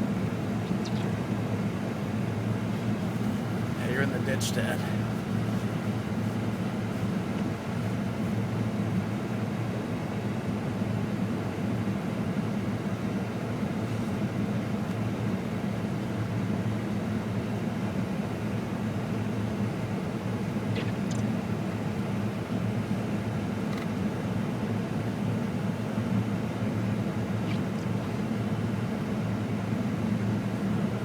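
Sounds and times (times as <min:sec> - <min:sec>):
pickup engine and road noise: 0:00.0 - 0:10.3.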